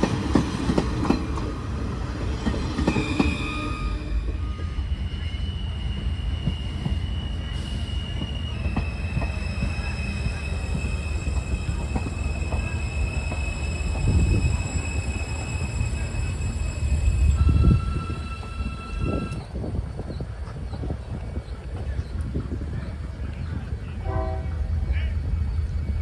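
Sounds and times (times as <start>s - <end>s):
rail clicks: 0.0s - 4.8s, 5.6s - 26.0s
subway train rumbling on rails: 0.0s - 26.0s
high-pitched wheel squeal: 2.9s - 19.4s.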